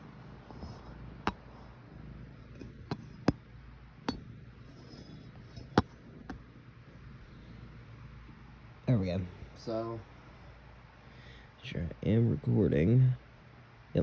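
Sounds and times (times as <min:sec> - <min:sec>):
low steady hum: 0:00.0 - 0:14.0
hard object clicking and clinking: 0:02.5 - 0:03.4, 0:04.1 - 0:06.4.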